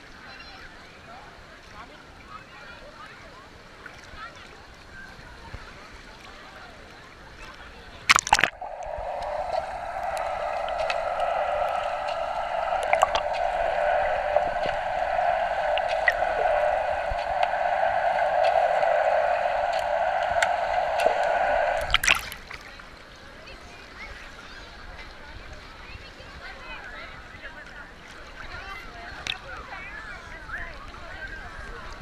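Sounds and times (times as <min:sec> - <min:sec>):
muffled rushing water: 0:08.1 - 0:22.5
water splash: 0:08.1 - 0:22.5.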